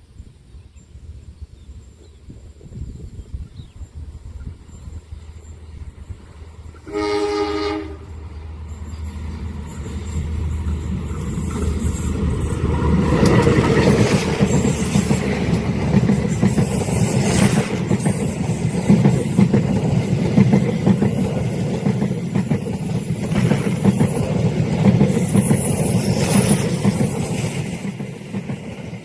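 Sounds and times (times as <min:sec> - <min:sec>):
train wheels rumbling on rails: 0:00.9 - 0:29.0
train horn blast: 0:06.8 - 0:08.2.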